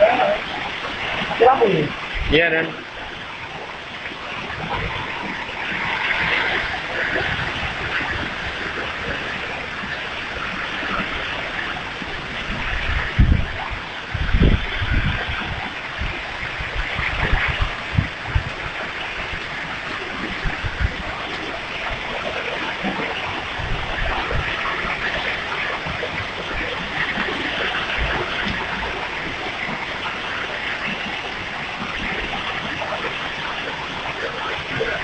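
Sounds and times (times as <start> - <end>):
heavy rain pouring: 0.0 - 35.0
wind gusts thumping microphone: 0.0 - 35.0.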